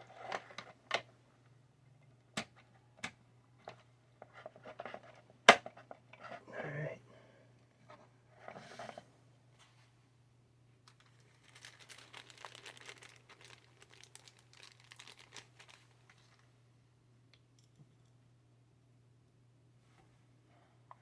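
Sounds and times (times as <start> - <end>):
crinkling and rustling with ticks: 10.8 - 16.6.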